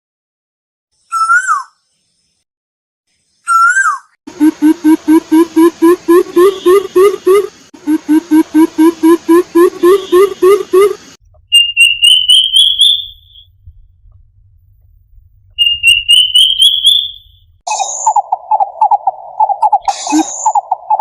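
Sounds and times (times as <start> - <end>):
high whistled bird notes: 1.0 - 1.8, 3.4 - 13.5, 15.6 - 21.0
low rapidly pulsing bird call: 3.4 - 13.5, 15.6 - 21.0
low rising hooting notes: 4.3 - 14.6.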